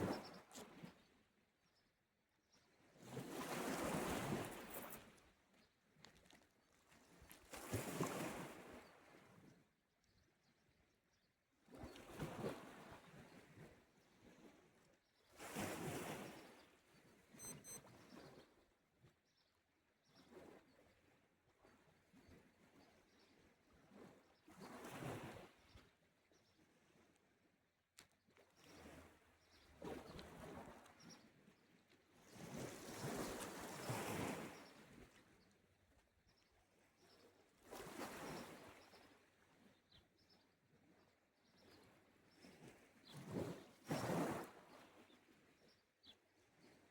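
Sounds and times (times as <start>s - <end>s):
short high-pitched chirps: 17.4s - 17.8s.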